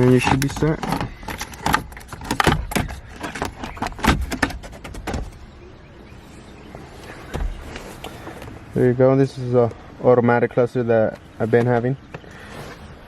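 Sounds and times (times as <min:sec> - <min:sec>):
plastic clicks knocks and rattles: 0:00.0 - 0:05.3.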